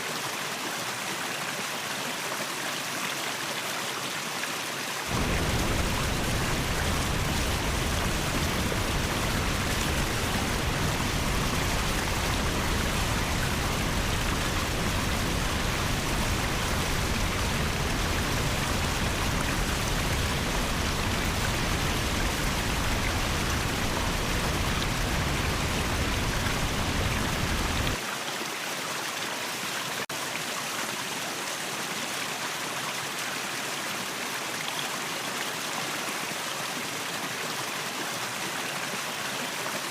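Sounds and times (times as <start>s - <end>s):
waterfall rushing: 5.0s - 28.0s
deep rumble: 5.1s - 28.0s.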